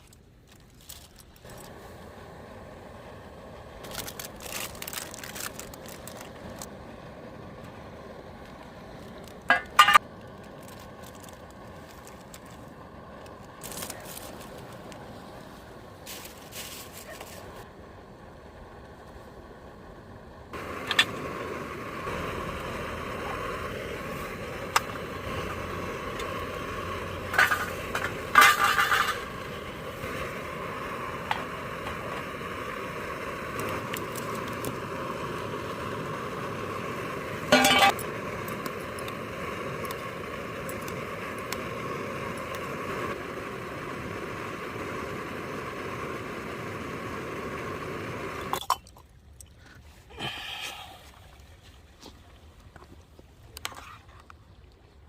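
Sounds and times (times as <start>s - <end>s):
steady hiss with faint tone: 0.0s - 55.0s
dishes and utensils clinking: 9.5s - 10.0s, 37.5s - 38.0s.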